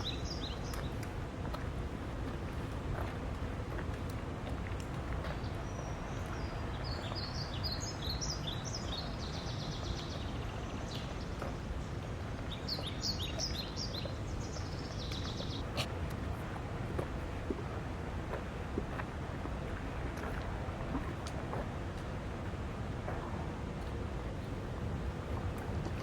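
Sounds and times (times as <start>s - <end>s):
songbird singing: 0.0s - 1.2s, 5.2s - 15.9s
flowing river water: 0.0s - 26.0s.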